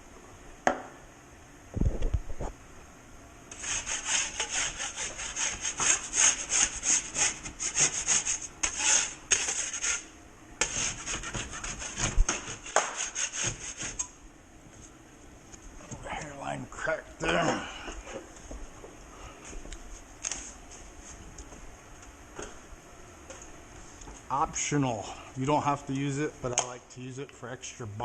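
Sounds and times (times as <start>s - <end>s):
hand saw cutting: 3.5s - 10.0s, 10.6s - 14.0s.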